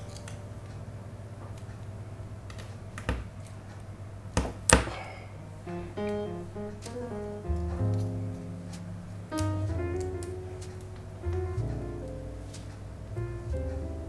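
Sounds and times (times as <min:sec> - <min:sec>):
low hum: 0:05.4 - 0:14.0
music notes: 0:05.4 - 0:14.0.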